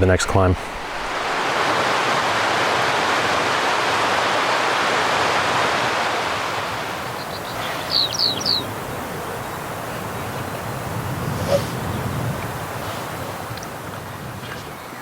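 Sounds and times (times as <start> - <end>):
mountain stream rushing: 0.0 - 15.0
bird chirping: 7.0 - 10.6.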